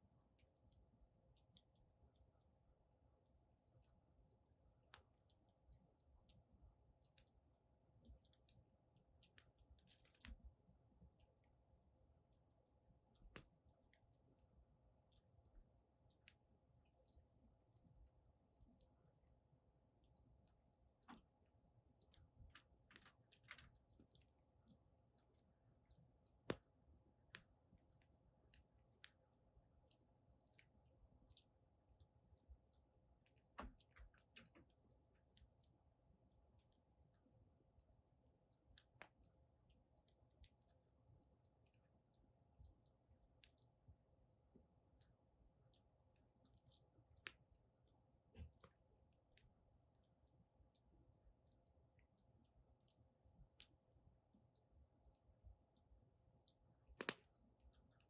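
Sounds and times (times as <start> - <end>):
wood fire crackling: 4.8 - 37.1, 56.8 - 58.0
firewood crackling: 22.0 - 24.7, 56.9 - 57.3.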